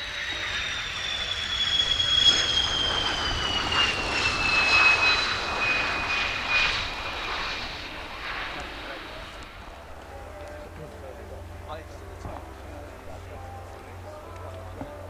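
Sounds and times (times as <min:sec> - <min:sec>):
jet aircraft engine whine: 0:00.0 - 0:15.0.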